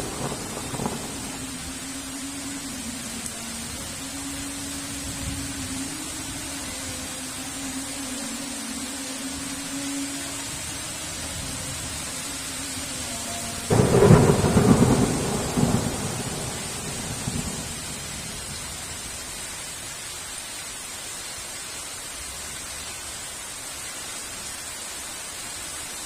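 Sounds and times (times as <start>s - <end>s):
thunderclap rumbling: 0.0s - 1.8s, 13.7s - 18.6s
heavy rain: 0.0s - 26.0s.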